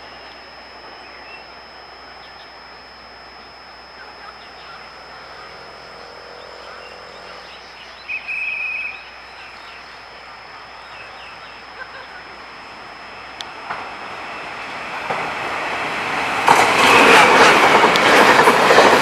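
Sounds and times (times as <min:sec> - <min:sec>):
animal buzzing trill: 0:00.0 - 0:13.4
faint chirps: 0:00.0 - 0:14.8
high-pitched whine: 0:00.0 - 0:19.0.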